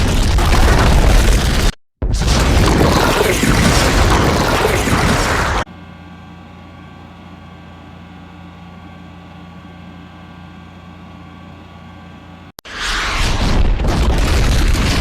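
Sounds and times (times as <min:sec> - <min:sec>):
loud rumbling: 0:00.0 - 0:05.7, 0:12.7 - 0:15.0
steady machine hum: 0:02.6 - 0:12.6.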